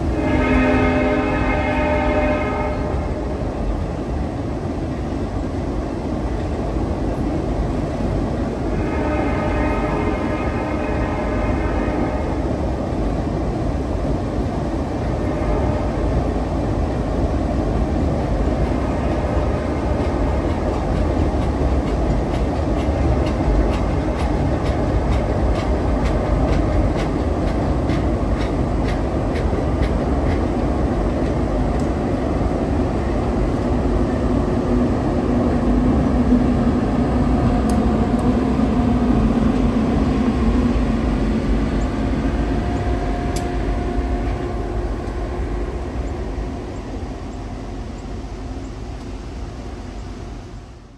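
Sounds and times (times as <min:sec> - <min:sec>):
train rumbling on rails: 0:00.0 - 0:50.9
wheels clicking over rail joints: 0:18.1 - 0:32.7.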